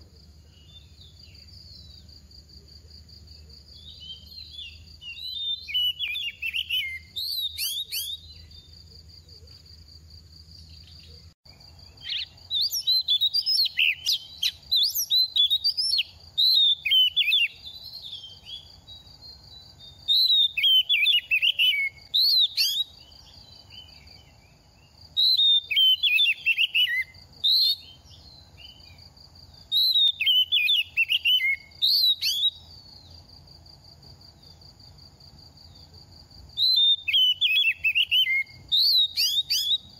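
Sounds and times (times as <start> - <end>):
bird singing whistled phrases: 3.8 - 8.7, 12.0 - 18.7, 19.9 - 24.0, 25.2 - 29.0, 29.7 - 32.7, 36.6 - 39.9.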